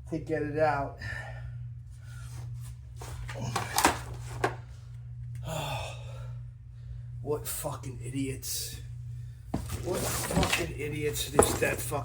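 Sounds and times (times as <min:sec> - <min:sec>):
steady low hum: 0:00.0 - 0:12.0
handling knocks and clicks: 0:09.6 - 0:12.0.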